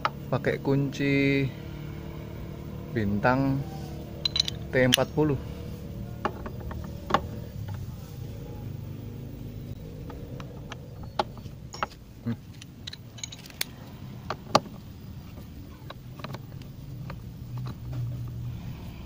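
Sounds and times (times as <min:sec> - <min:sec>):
steady low hum: 0:00.0 - 0:19.0
metal clinks of hand tools: 0:04.2 - 0:05.2, 0:12.8 - 0:13.7.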